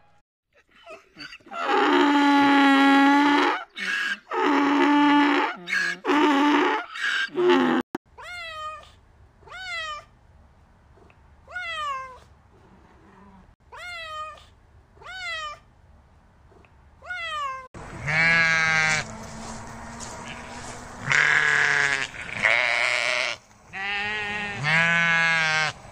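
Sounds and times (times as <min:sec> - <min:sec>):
cat meowing: 0:08.2 - 0:10.1, 0:11.5 - 0:12.3, 0:13.7 - 0:15.6, 0:17.0 - 0:18.6
donkey braying: 0:17.8 - 0:25.8
sheep bleating: 0:17.8 - 0:25.8.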